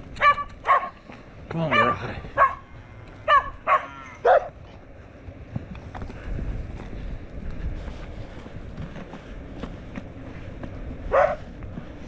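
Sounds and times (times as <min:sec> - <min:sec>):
steady low rumble: 0:00.0 - 0:12.0
dog barking: 0:00.2 - 0:01.0, 0:01.7 - 0:02.6, 0:03.2 - 0:04.6, 0:11.1 - 0:11.4.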